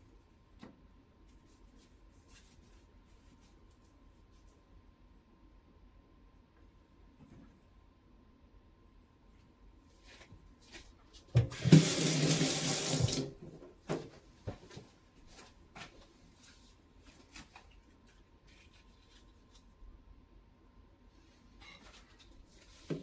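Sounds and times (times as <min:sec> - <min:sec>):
tap running into sink: 0:11.4 - 0:13.4.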